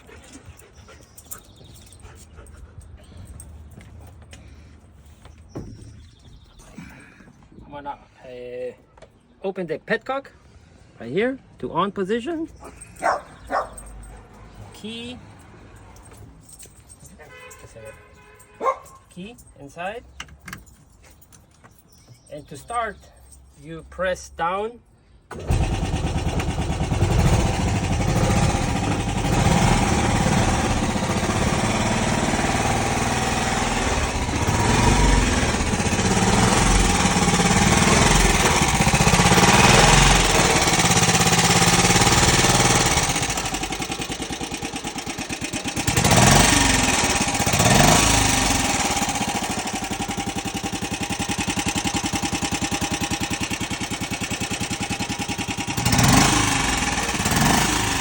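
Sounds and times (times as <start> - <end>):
engine throttle blips: 25.3 - 58.0
small engine starting and idling: 25.3 - 58.0.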